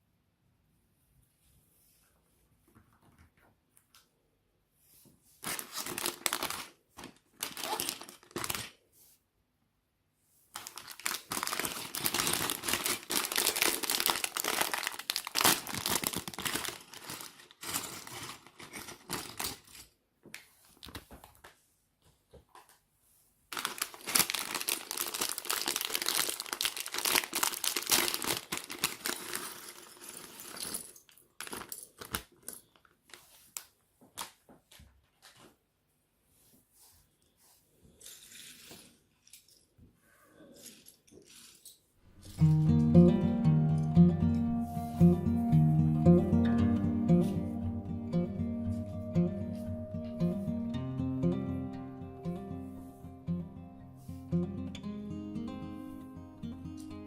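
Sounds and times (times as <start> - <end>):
plastic bags crinkling and tearing: 5.4 - 8.8, 10.5 - 20.0, 23.5 - 34.4.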